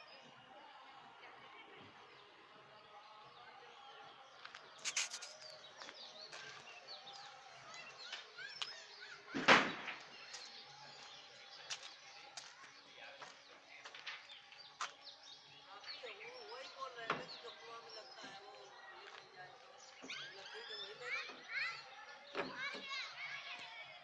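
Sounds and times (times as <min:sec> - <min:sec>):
birds chirping: 0:02.1 - 0:23.9.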